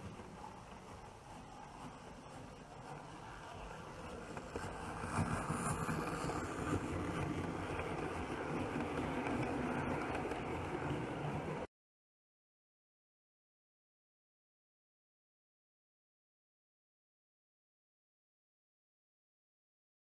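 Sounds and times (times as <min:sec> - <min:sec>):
model train running on track: 0:00.0 - 0:11.7.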